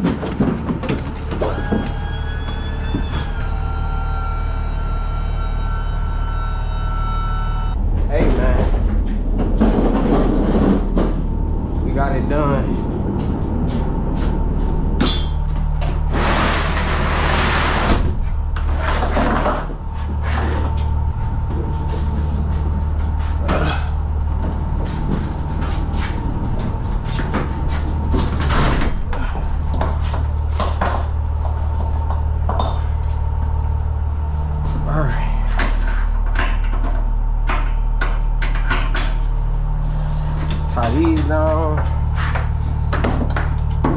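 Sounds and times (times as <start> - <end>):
doors and cargo clunking: 0.0 - 6.2, 7.7 - 33.0
low engine hum: 0.0 - 43.9.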